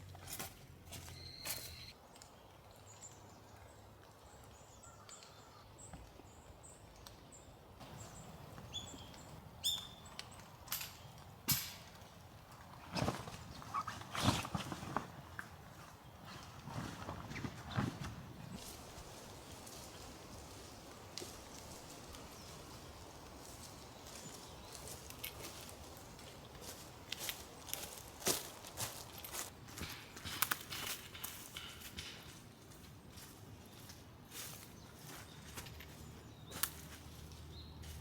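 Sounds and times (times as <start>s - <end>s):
small birds chirping: 1.0s - 11.4s, 12.2s - 28.4s.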